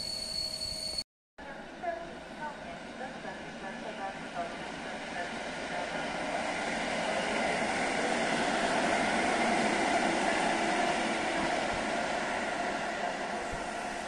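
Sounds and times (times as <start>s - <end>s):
train wheels on rail passing: 3.2s - 14.0s.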